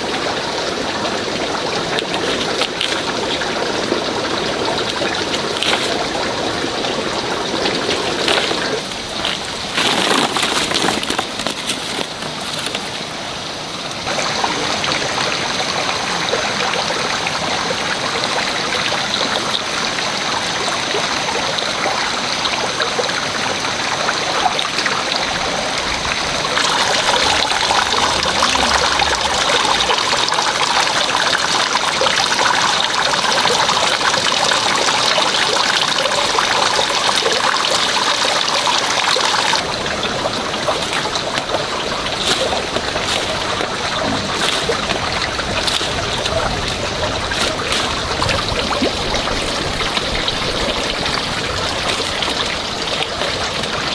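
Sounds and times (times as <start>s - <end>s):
water running: 0.0s - 13.2s, 22.9s - 53.9s.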